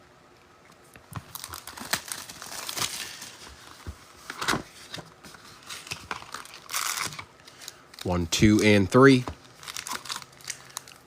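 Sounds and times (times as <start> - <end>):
wrapper tearing and crinkling: 1.2 - 3.7, 4.8 - 8.2, 9.4 - 11.0.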